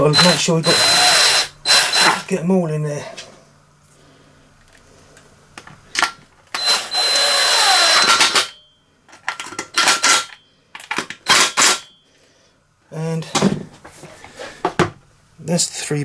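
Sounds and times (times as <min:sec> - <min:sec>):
power drill driving screws: 0:00.0 - 0:02.3, 0:06.5 - 0:08.6, 0:09.7 - 0:10.3, 0:11.2 - 0:11.8.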